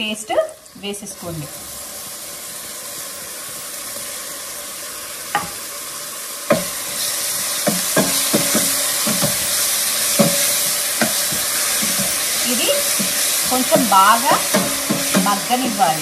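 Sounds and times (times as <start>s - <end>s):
paste sizzling in hot oil: 0.0s - 16.0s
metal spoon clinking against pot: 10.2s - 16.0s.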